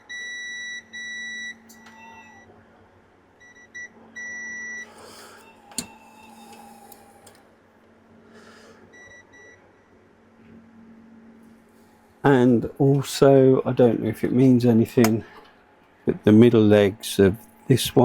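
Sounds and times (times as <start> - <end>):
multimeter continuity beeps: 0.0 - 2.5, 3.4 - 7.1, 8.9 - 9.6.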